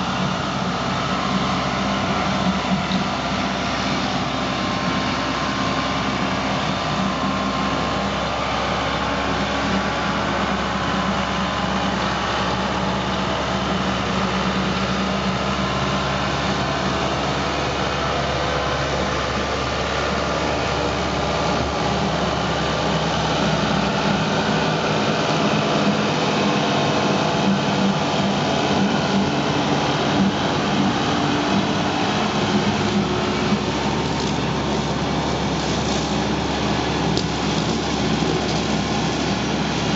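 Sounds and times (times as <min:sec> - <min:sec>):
tractor engine running: 0:00.0 - 0:39.9
grass slasher cutting: 0:27.1 - 0:39.9.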